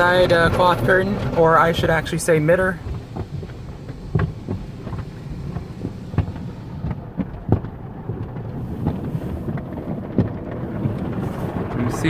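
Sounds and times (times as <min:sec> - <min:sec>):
low rumble: 0:00.0 - 0:12.0
cloth strips slapping car body: 0:02.8 - 0:11.6.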